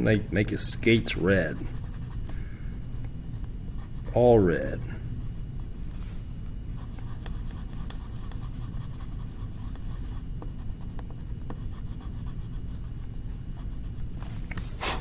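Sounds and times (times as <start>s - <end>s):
scratchy colouring strokes on paper: 0.0s - 2.3s, 6.8s - 15.0s.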